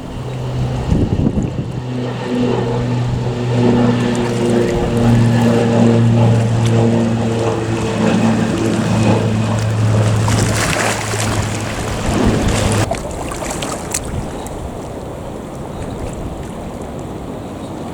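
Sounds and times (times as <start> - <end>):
engine drone: 0.0 - 17.9
wind noise: 0.0 - 17.9.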